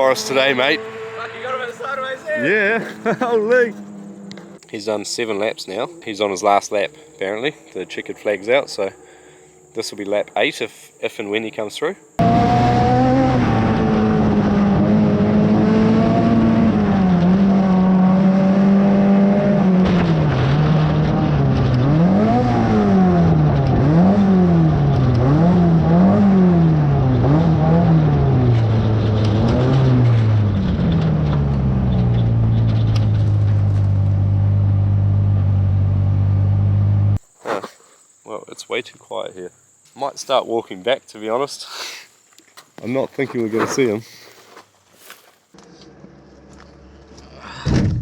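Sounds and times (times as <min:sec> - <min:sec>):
race car engine revving: 0:00.0 - 0:04.7, 0:12.2 - 0:37.2.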